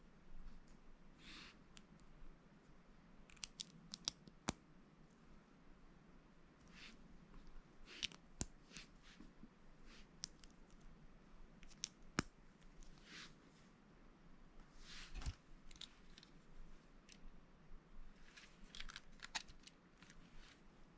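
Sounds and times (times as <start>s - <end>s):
soft rustling: 14.6s - 17.3s, 18.0s - 20.9s.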